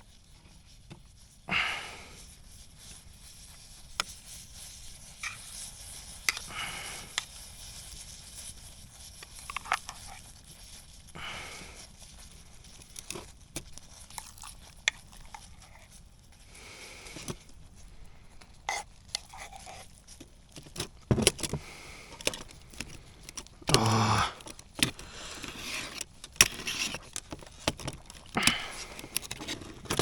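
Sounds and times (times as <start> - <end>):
metal utensils scraping a tin: 18.6 - 20.0, 24.4 - 30.0.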